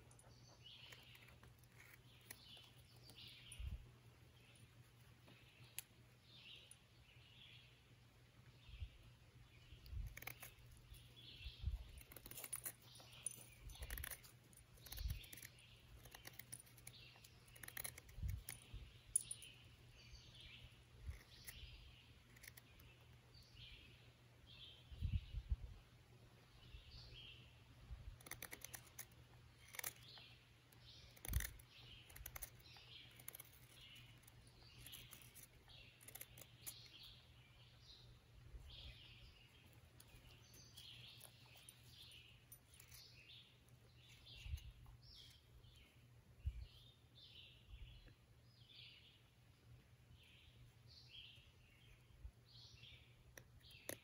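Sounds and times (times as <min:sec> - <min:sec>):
small birds chirping: 0:00.0 - 0:54.0
sharp clicks: 0:31.0 - 0:36.9.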